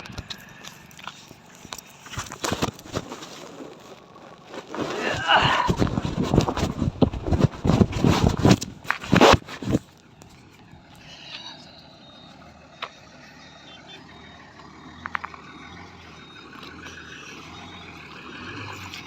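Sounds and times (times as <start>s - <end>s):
truck engine running: 9.6s - 19.0s
faint reversing alarm beeping: 10.4s - 19.0s.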